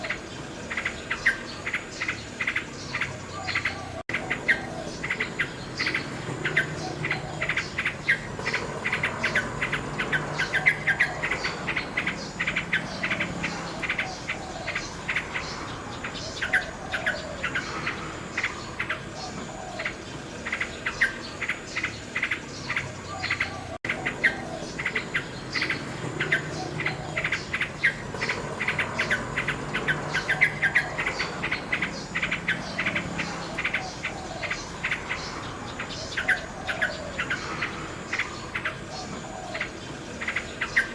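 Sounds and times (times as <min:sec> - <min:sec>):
insects chirring: 0:00.0 - 0:40.9
nightingale singing: 0:00.0 - 0:40.9.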